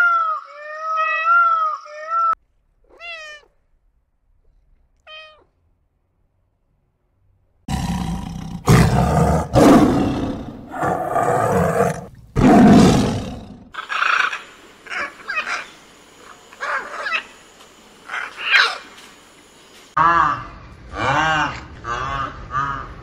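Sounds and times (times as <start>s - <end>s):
tiger roaring and growling: 7.7s - 13.8s.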